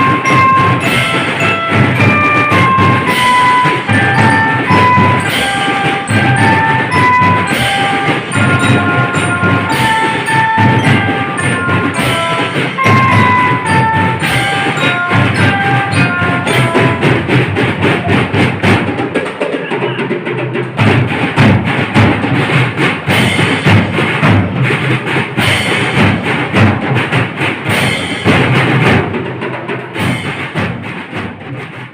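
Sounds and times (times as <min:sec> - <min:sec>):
high pitched melody: 0:00.0 - 0:17.5
snare and bass drums: 0:00.0 - 0:31.9.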